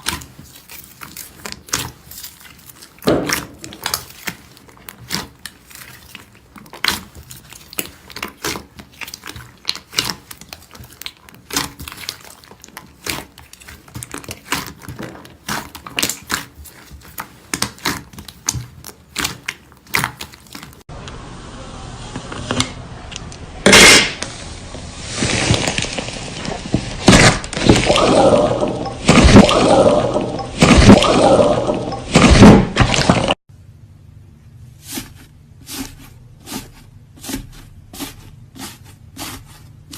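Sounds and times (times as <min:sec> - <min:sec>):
wet squishing and slapping: 0:00.0 - 0:20.9, 0:25.1 - 0:33.4.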